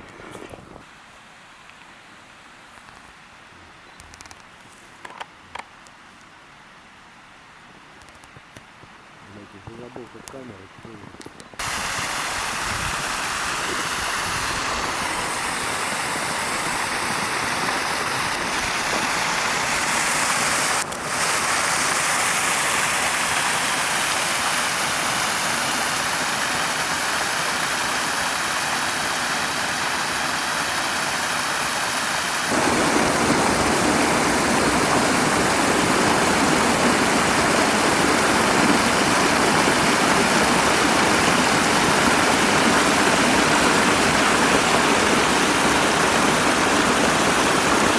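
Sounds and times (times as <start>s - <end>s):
waterfall rushing: 11.6s - 47.9s.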